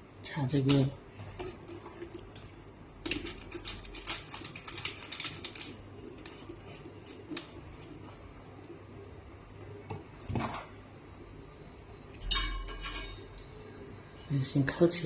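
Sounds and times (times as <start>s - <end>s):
small hard parts clicking: 3.0s - 5.8s.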